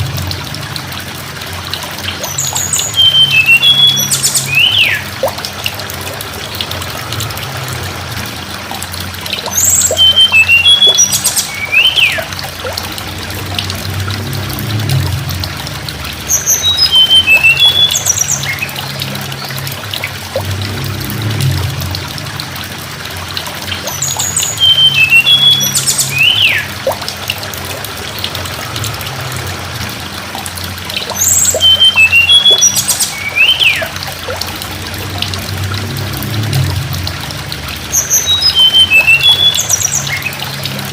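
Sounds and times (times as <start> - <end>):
low hum: 0.0 - 40.9
rushing water: 0.0 - 40.9
songbird whistling: 2.2 - 5.1, 9.5 - 12.3, 16.4 - 18.7, 23.9 - 26.7, 31.1 - 34.0, 38.0 - 40.3.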